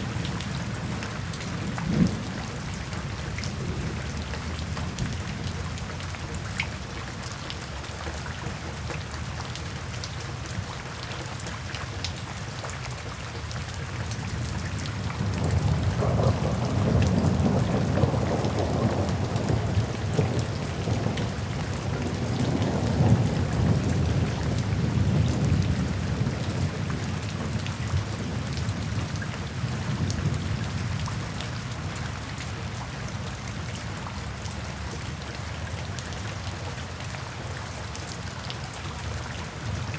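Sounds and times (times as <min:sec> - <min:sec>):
low rumble of thunder: 0:00.0 - 0:06.4, 0:14.2 - 0:34.6
steady rain falling: 0:00.0 - 0:39.9.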